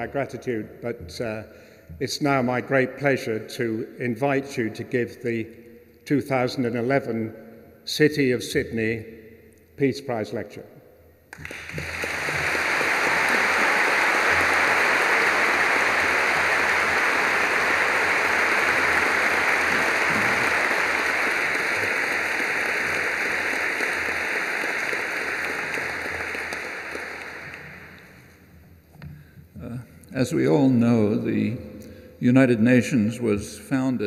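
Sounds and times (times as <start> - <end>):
audience applauding: 11.3 - 28.3.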